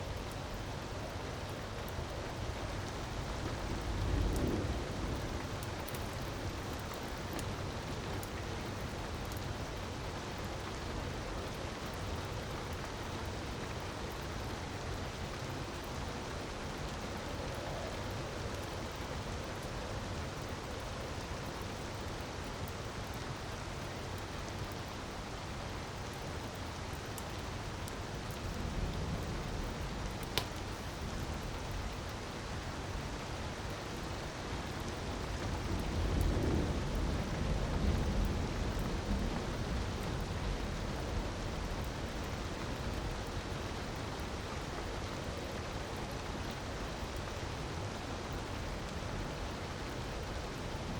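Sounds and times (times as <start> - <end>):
crackling fireplace fire: 0.0 - 50.9
sharp crack: 30.4 - 30.6.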